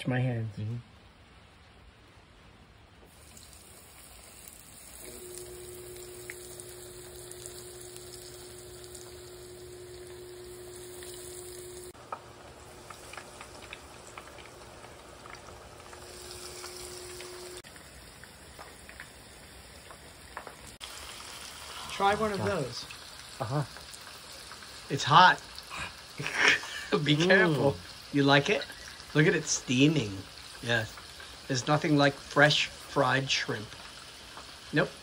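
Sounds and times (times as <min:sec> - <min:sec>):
oil popping and crackling: 0:03.0 - 0:35.0
shrimp deep-frying in oil: 0:03.0 - 0:35.0
steady hum: 0:05.0 - 0:17.6.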